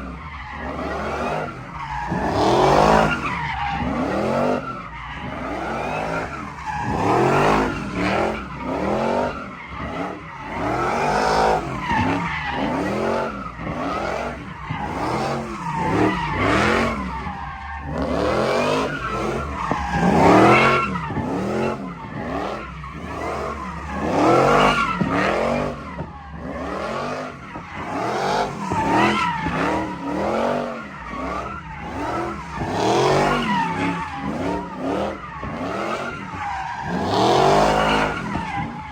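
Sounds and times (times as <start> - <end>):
tires squealing: 0.0 - 38.9
vehicle engines revving: 0.0 - 38.9.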